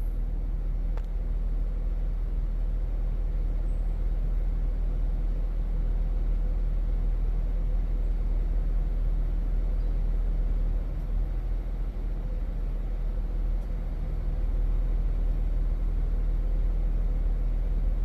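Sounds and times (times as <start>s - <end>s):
vehicle engine rumbling: 9.7s - 18.0s.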